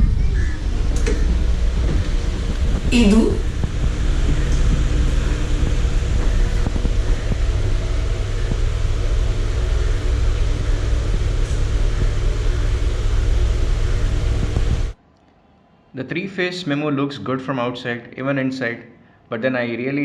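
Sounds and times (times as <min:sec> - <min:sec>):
train rumble: 0:00.0 - 0:15.0
faint steady hum: 0:00.0 - 0:18.3.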